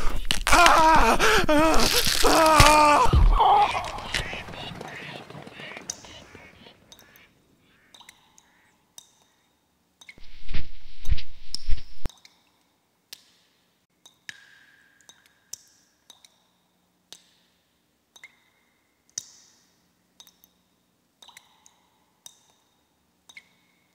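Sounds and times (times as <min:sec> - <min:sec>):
water drips in a cave: 0:07.9 - 0:10.2, 0:12.1 - 0:23.8.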